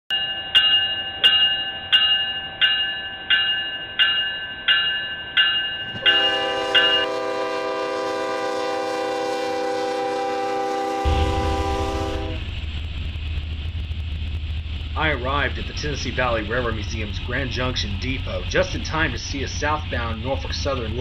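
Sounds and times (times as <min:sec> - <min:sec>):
bell ringing: 0:00.1 - 0:07.1
train horn chord: 0:06.0 - 0:12.6.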